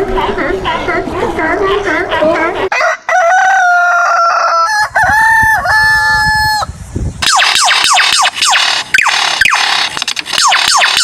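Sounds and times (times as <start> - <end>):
rooster crowing: 2.7 - 6.7.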